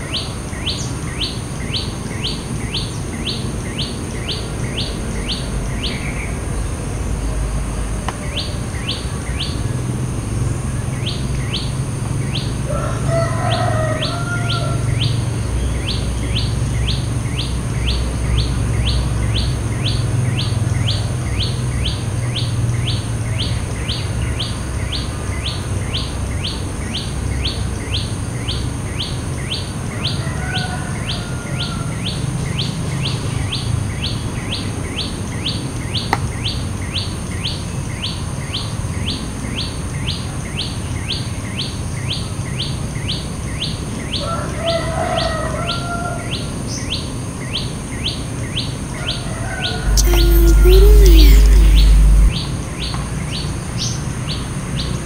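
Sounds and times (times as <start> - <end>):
lower bird calls: 49.8 - 52.5
low rumble: 49.9 - 52.4
short high falling bird chirps: 49.9 - 52.4.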